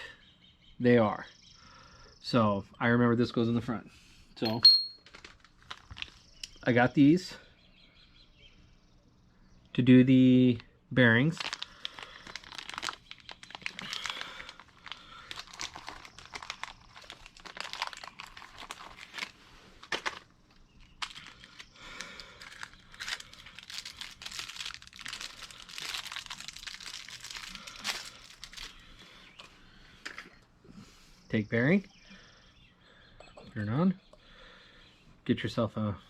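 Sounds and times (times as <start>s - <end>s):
plastic packaging crinkling: 5.0s - 6.5s, 11.3s - 29.0s.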